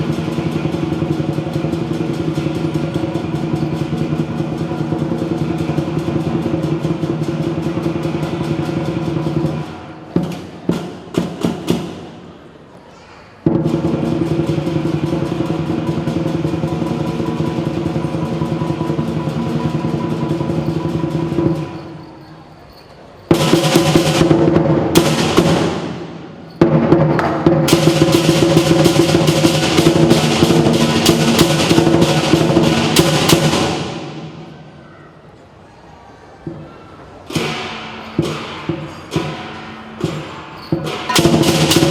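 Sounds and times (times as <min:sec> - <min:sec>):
large drum fast roll: 0:00.0 - 0:12.1, 0:13.4 - 0:21.8, 0:23.3 - 0:34.6, 0:40.8 - 0:41.9
cymbals clashing: 0:00.0 - 0:35.4, 0:36.4 - 0:41.9.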